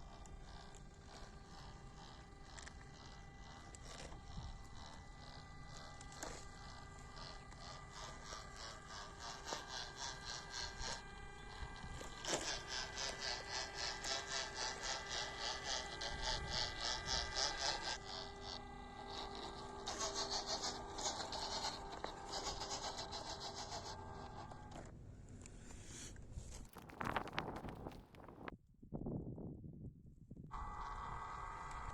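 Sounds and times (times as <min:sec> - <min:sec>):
small electric motor whining: 0:00.0 - 0:24.9, 0:30.5 - 0:31.9.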